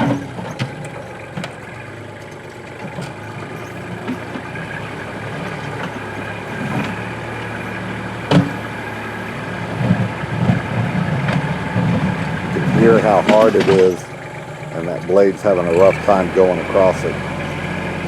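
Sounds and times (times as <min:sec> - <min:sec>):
diesel engine under load: 0:00.0 - 0:18.0
bucket grinding across rock: 0:12.0 - 0:14.1
metal clank: 0:12.7 - 0:14.1.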